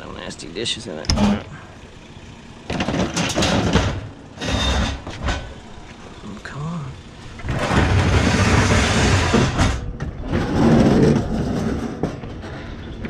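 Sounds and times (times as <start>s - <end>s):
metal dishwasher scraping and rattling: 2.8s - 5.5s, 7.5s - 12.6s.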